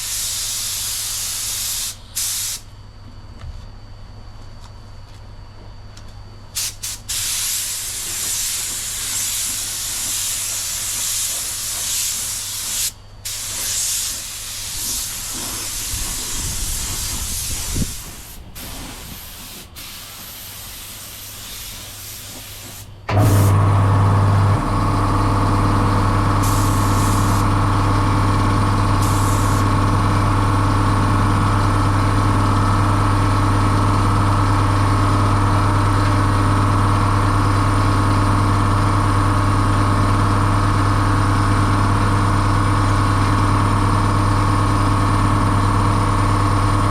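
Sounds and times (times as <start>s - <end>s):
spray gun hissing: 0.0s - 2.6s, 6.6s - 23.6s, 26.3s - 27.6s, 28.9s - 29.7s
loud steady motor hum: 23.1s - 46.9s.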